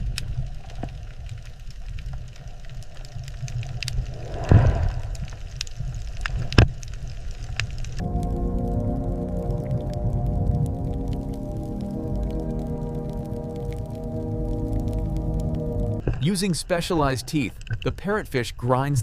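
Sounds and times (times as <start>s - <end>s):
underwater low rumble: 0.0s - 16.0s
crackling clicks: 0.0s - 18.1s
soft music with sustained tones: 8.0s - 16.0s.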